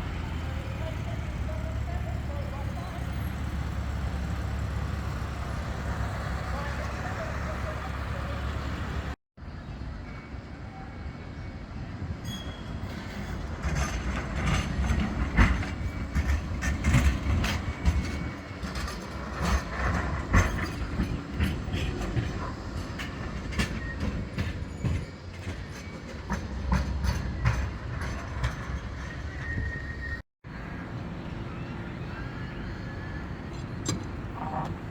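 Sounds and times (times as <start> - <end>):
tram rumbling past: 0.0 - 34.9
wheels clicking on rails: 12.8 - 34.9.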